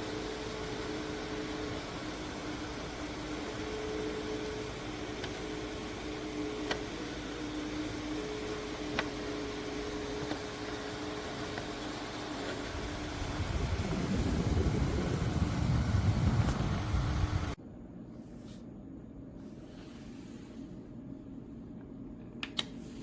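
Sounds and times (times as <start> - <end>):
desk fan blowing on microphone: 0.0 - 17.6.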